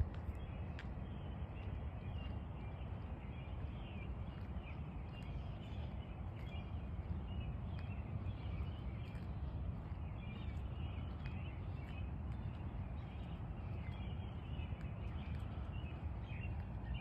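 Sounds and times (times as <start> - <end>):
steady low rumble: 0.0 - 17.0
small birds chirping: 0.3 - 17.0.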